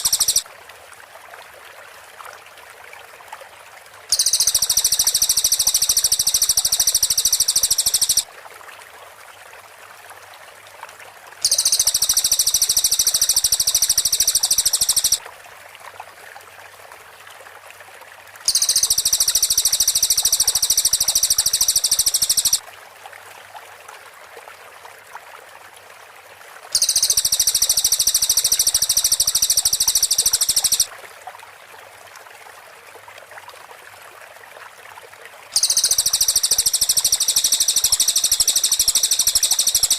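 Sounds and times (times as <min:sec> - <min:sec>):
bird rapid high trill: 0:00.0 - 0:00.4, 0:04.1 - 0:08.2, 0:11.4 - 0:15.2, 0:18.5 - 0:22.6, 0:26.8 - 0:30.9, 0:35.6 - 0:39.9.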